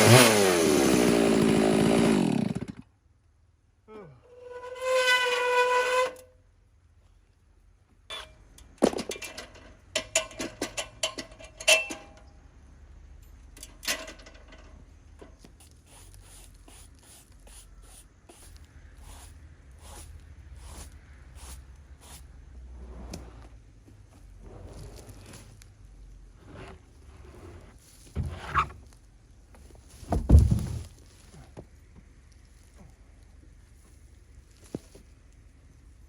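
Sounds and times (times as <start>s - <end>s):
chainsaw running: 0.0s - 2.8s.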